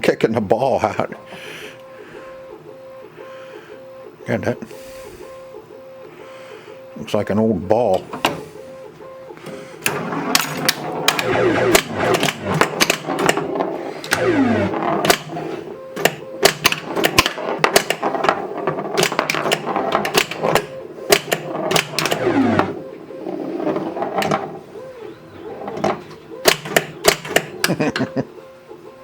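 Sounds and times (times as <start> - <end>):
printer whirring: 0.8 - 29.0
pinball machine clicks and clacks: 9.8 - 28.2
falling electronic tones: 9.9 - 29.0.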